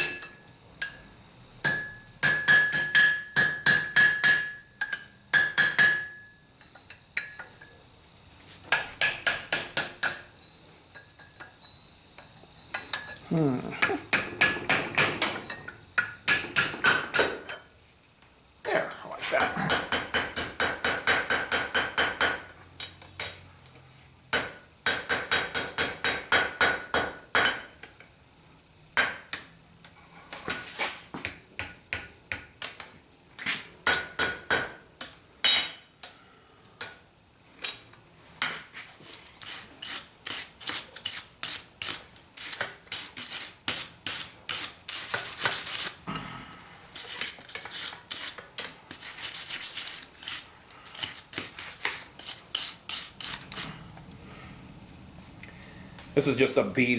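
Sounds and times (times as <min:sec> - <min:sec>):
hammer ringing on anvil: 0:00.0 - 0:06.4, 0:19.6 - 0:22.6, 0:24.3 - 0:27.9, 0:33.8 - 0:36.1
scraping strokes on metal: 0:38.5 - 0:46.0, 0:46.9 - 0:53.8.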